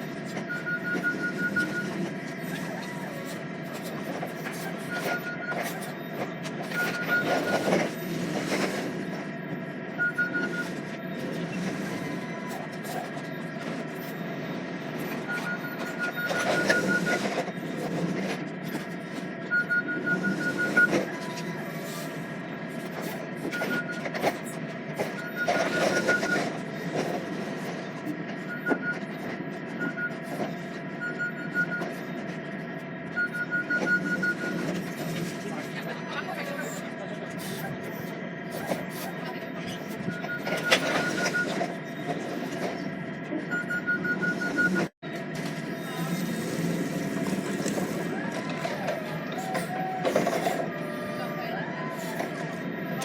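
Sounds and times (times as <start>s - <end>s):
rapid high beeping: 0.0s - 3.0s, 9.4s - 11.2s
high electronic beeps: 0.0s - 8.3s, 9.4s - 17.8s, 18.8s - 21.9s, 22.8s - 26.6s, 28.4s - 32.3s, 33.0s - 36.9s, 37.6s - 42.3s, 43.5s - 44.9s
lorry engine and road rumble: 0.0s - 53.0s.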